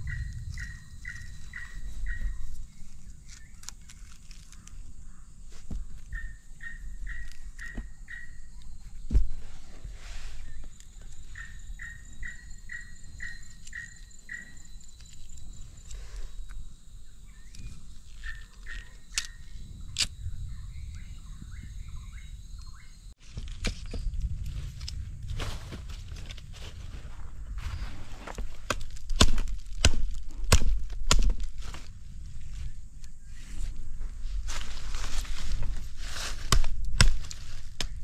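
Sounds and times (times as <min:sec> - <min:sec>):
low rumble: 0:00.0 - 0:03.7
bird calling repeated notes: 0:00.0 - 0:05.3, 0:05.9 - 0:08.8, 0:11.2 - 0:15.4, 0:17.0 - 0:23.1
sharp cracks: 0:28.6 - 0:31.6.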